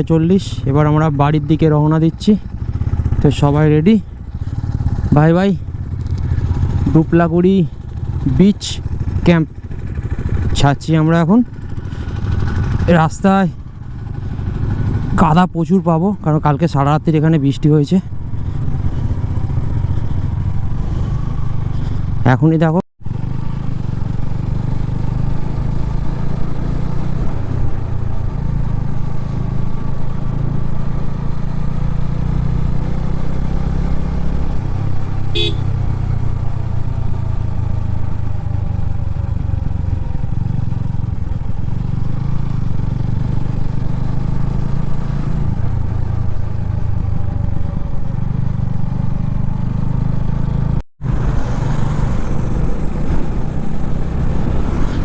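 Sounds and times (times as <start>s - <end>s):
motorcycle engine running: 0.0s - 22.3s, 23.0s - 55.0s.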